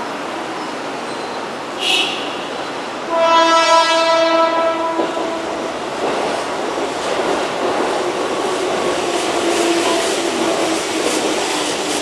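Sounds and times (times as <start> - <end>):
train rumbling on rails: 0.0 - 12.0
train horn chord: 1.8 - 5.7.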